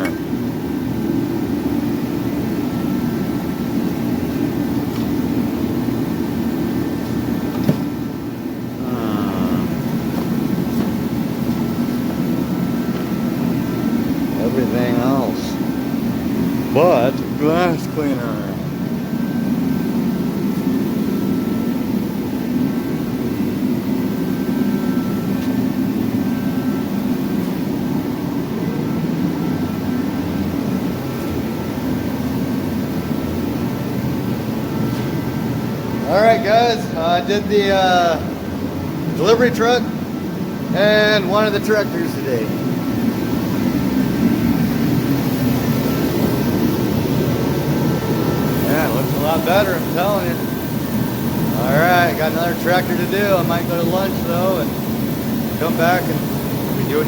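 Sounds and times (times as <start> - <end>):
machine droning: 0.0 - 57.0
faint high steady tones: 11.0 - 38.3, 39.0 - 57.0.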